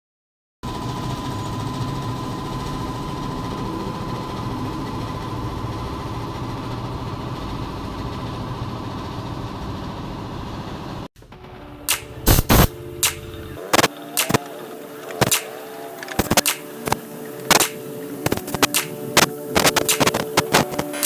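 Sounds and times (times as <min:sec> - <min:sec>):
motor running with rattling pulse: 0:00.7 - 0:11.0.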